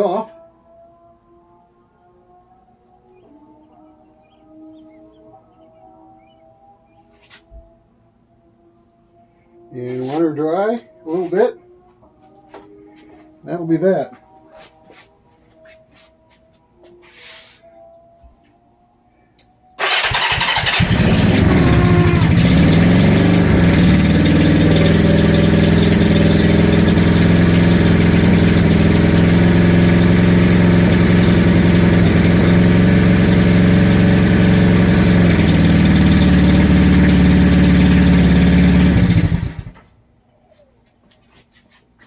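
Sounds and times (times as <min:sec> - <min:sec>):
motorcycle engine starting: 0:19.8 - 0:39.9.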